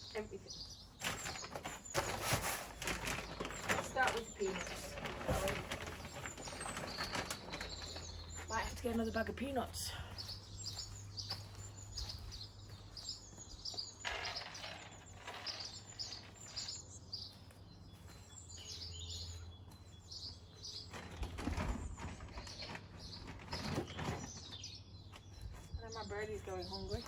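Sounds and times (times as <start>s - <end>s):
small birds chirping: 0.0s - 27.0s
rustling handling noise: 0.1s - 13.2s.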